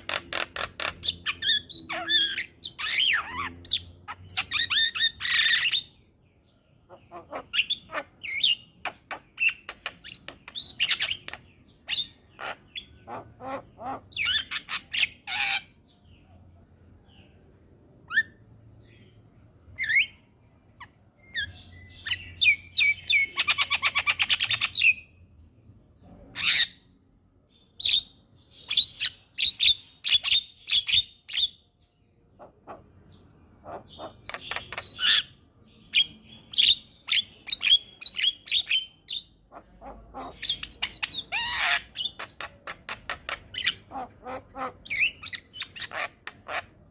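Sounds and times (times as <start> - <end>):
bird chattering and whistling: 0.0 - 6.0, 6.9 - 15.8, 20.8 - 25.1, 32.4 - 46.9.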